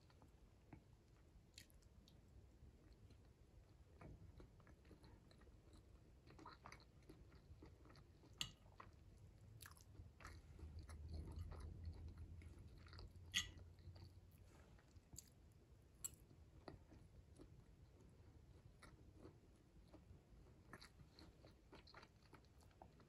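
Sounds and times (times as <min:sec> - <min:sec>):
close chewing with mouth clicks: 0:00.0 - 0:23.0
metal fork clinking on plate: 0:13.4 - 0:13.6.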